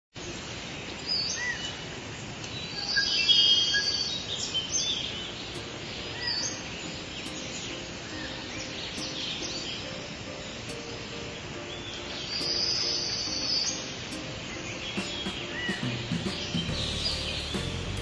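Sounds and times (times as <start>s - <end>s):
birds calling and singing: 0.2s - 18.0s
steady background hiss: 0.2s - 18.0s.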